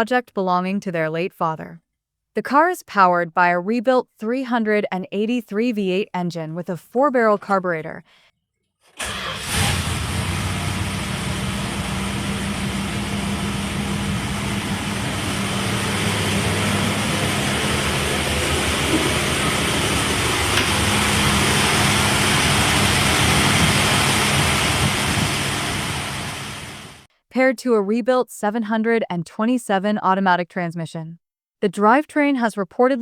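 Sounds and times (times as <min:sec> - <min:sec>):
car engine running steadily: 0:09.4 - 0:27.1.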